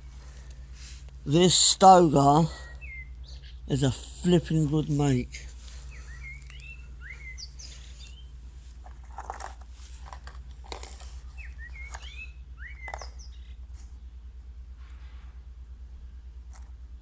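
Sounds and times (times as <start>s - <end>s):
small birds chirping: 0.0s - 14.4s
steady low hum: 0.0s - 17.0s.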